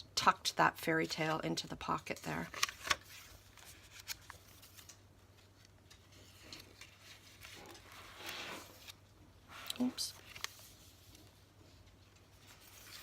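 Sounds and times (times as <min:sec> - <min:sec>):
paper rustling and sliding: 0:02.5 - 0:05.0, 0:05.6 - 0:11.4, 0:12.3 - 0:13.0.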